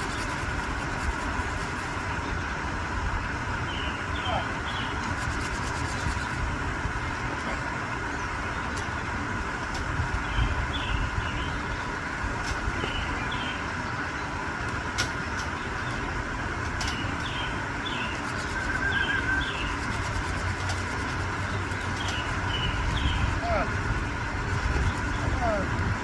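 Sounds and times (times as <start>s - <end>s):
small birds chirping: 0.0s - 26.0s
bird warbling call: 16.8s - 25.8s.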